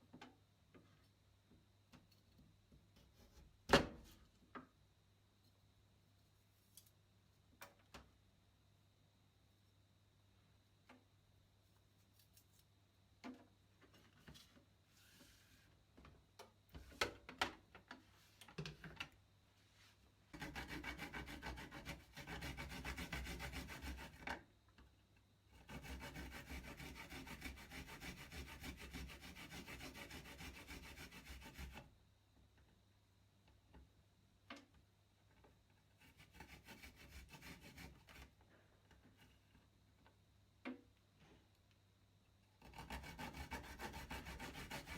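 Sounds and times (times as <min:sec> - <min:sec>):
garlic rasping on a grater: 0:20.4 - 0:24.2, 0:25.6 - 0:31.8, 0:42.6 - 0:44.9.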